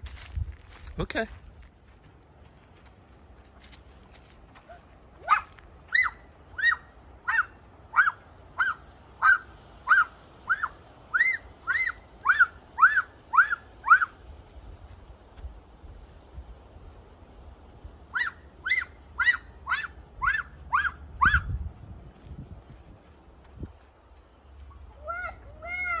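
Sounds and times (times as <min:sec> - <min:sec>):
bird calling loud arched notes: 0:05.3 - 0:14.2, 0:18.1 - 0:21.5.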